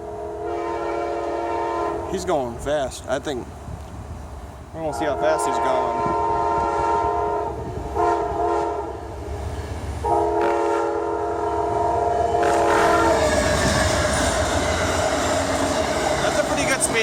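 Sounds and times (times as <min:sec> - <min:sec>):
train chime horn blasts: 0:00.0 - 0:02.0, 0:05.1 - 0:09.0, 0:10.0 - 0:16.9
locomotive low rumble: 0:01.1 - 0:17.0
train wheels clattering on rail: 0:12.3 - 0:17.0.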